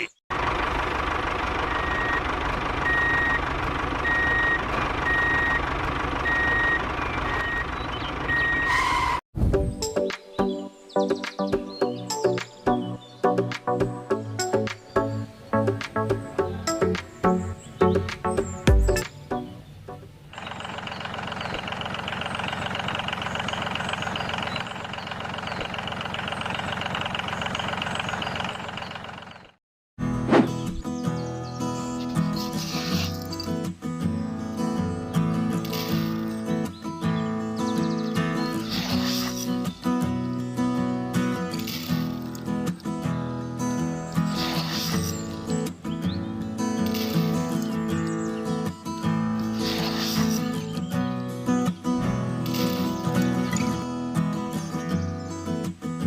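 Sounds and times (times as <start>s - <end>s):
engine rumble: 0.0s - 9.2s, 19.1s - 33.7s
reversing alarm beeping: 1.7s - 3.4s, 4.0s - 9.2s.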